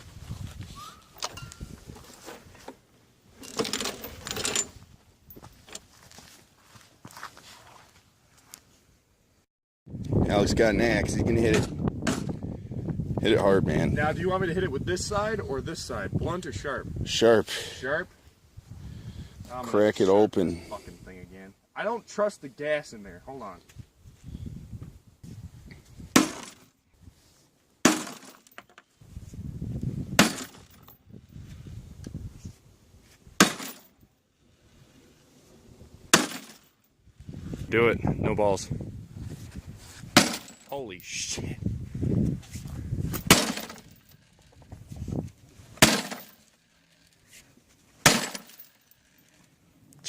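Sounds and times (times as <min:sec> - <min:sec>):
axe striking lawnmower: 0:26.1 - 0:26.6, 0:27.8 - 0:28.5, 0:30.2 - 0:30.7, 0:33.4 - 0:33.8, 0:36.1 - 0:36.6, 0:40.2 - 0:40.7, 0:43.2 - 0:43.9, 0:45.8 - 0:46.5, 0:48.0 - 0:48.6.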